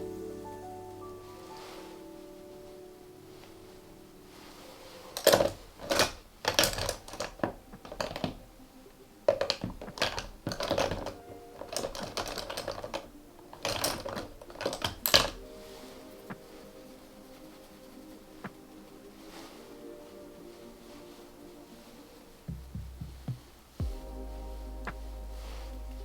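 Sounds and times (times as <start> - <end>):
faint background music: 0.0 - 26.0
makeup brush tapping and scraping: 9.3 - 15.4, 22.5 - 23.8.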